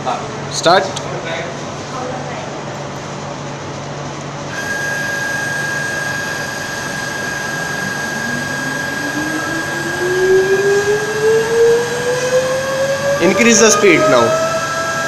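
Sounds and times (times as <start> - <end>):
rising tone: 4.5 - 15.0
spindle motor whine: 4.5 - 15.0.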